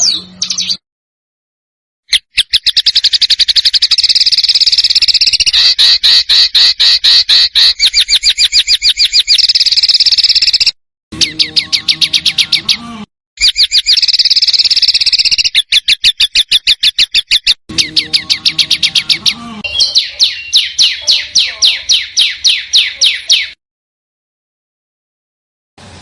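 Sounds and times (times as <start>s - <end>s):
songbirds chirping: 0.0s - 0.8s, 2.3s - 23.6s.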